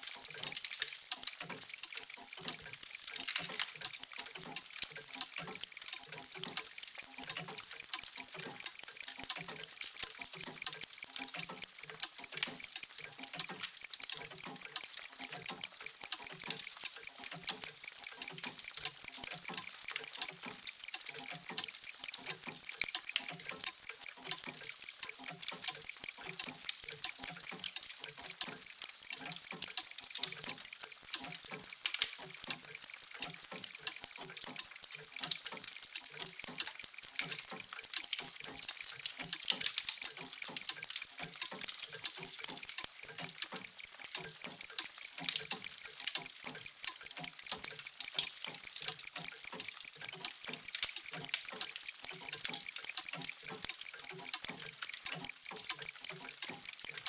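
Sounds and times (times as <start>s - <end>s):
many clocks ticking: 0.0s - 57.0s.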